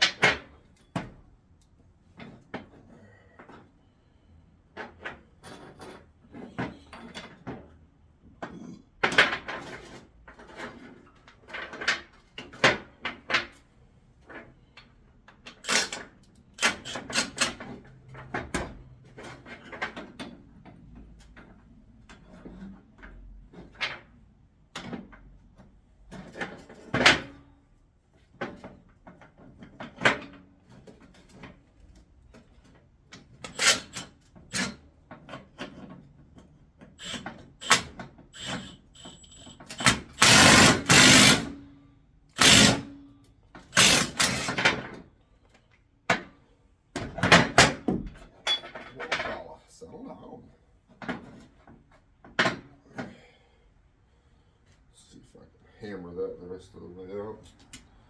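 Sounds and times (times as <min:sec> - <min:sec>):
clanks of hand tools on metal: 0:15.3 - 0:17.6, 0:33.2 - 0:36.0, 0:36.9 - 0:41.5, 0:42.4 - 0:42.9, 0:43.7 - 0:44.9, 0:48.4 - 0:49.4.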